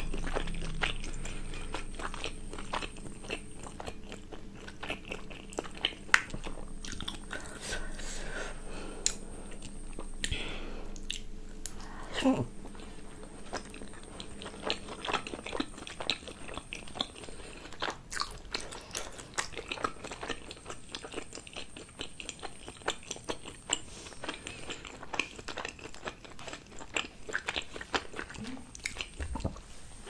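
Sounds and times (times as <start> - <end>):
mouth chewing clicks and smacks: 11.0 - 11.8.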